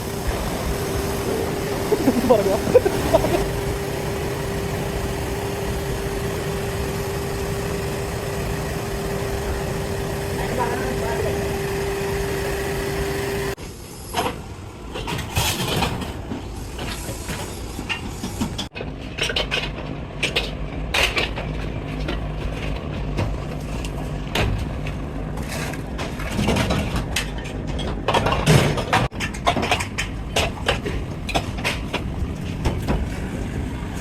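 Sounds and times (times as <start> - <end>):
heavy machinery rumbling: 0.0 - 13.6
steady hum: 0.0 - 13.6.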